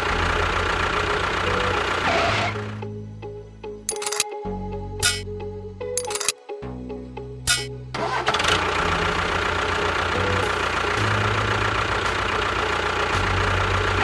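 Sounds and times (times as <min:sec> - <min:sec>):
small engine rough drone: 0:00.0 - 0:02.8, 0:07.9 - 0:14.0.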